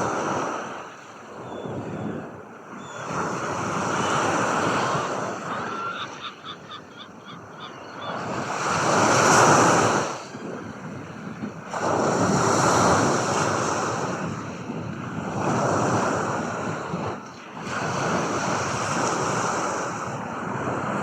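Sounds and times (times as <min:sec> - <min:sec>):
surf washing ashore: 0:00.0 - 0:21.0.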